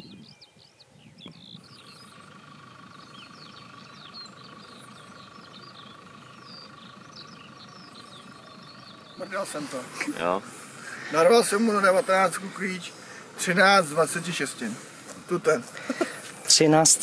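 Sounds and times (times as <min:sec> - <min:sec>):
low steady rumble: 0:00.0 - 0:17.0
small birds chirping: 0:00.0 - 0:17.0.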